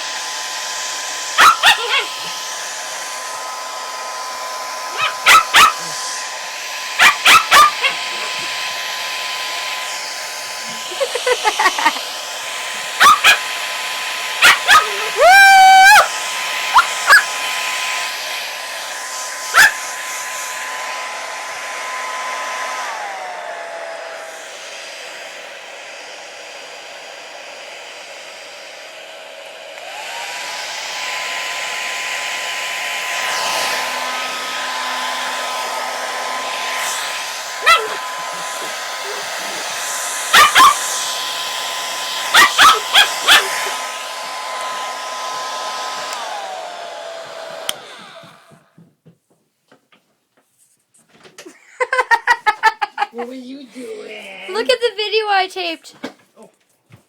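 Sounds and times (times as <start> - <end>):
hair dryer whining: 0.0 - 48.9, 51.2 - 56.2
puppy barking: 1.4 - 2.3, 4.9 - 6.0, 6.9 - 8.5, 12.9 - 13.5, 14.4 - 15.2, 16.7 - 17.4, 19.4 - 19.9, 37.6 - 41.0, 42.2 - 43.8.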